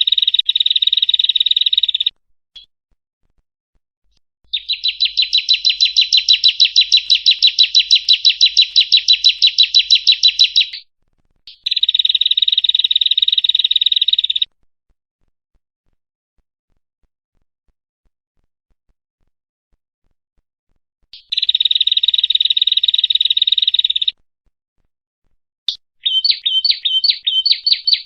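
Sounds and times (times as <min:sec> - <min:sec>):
bird high chirps: 0:00.0 - 0:02.7, 0:04.5 - 0:10.9, 0:11.5 - 0:14.5, 0:21.2 - 0:24.2, 0:25.7 - 0:28.0
bird buzzing trill: 0:04.5 - 0:10.8.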